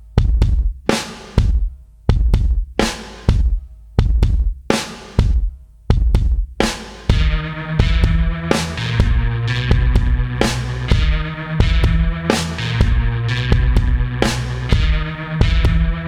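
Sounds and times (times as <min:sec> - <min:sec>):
drum-kit beat: 0:00.0 - 0:16.0
sustained bass line: 0:07.1 - 0:16.0.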